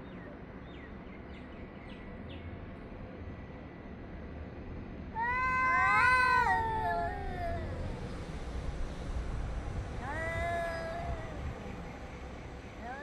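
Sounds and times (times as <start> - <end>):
cat yowling: 5.2 - 8.0, 10.0 - 11.6, 12.8 - 13.0.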